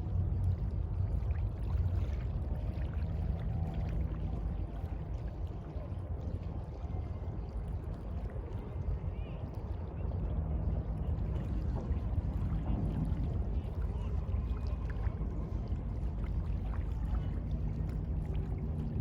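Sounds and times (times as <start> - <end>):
sea water washing and lapping: 9.7 - 19.0.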